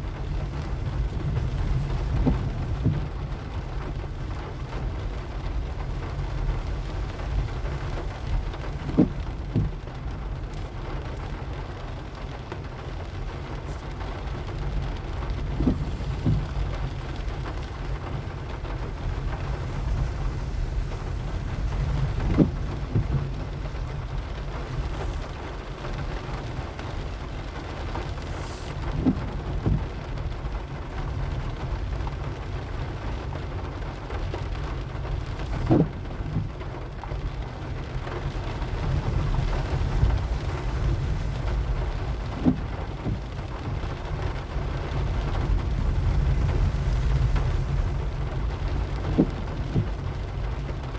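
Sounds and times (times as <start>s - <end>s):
car driving rumble: 0.0s - 50.9s
rain falling on a car: 0.0s - 50.9s
short soft thumps: 2.1s - 3.1s, 8.8s - 10.6s, 15.2s - 25.4s, 28.3s - 30.0s, 35.4s - 36.6s, 42.2s - 43.4s, 48.6s - 50.1s.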